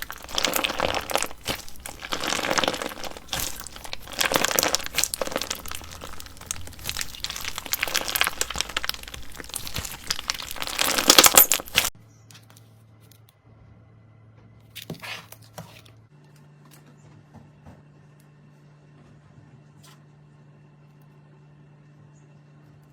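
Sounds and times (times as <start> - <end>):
slime crackling and crinkling: 0.0 - 12.0
slime squish: 0.0 - 12.0.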